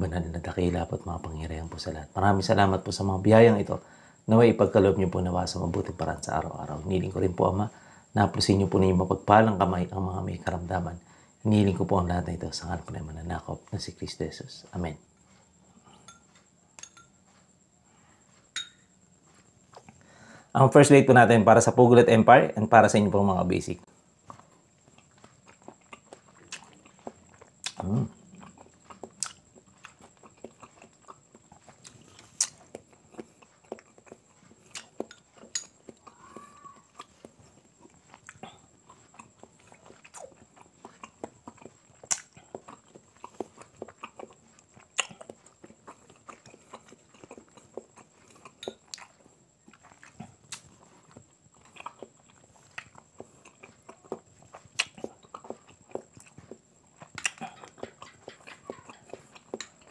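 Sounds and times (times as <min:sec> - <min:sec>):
chewing with wet mouth smacks: 0:24.1 - 0:59.9.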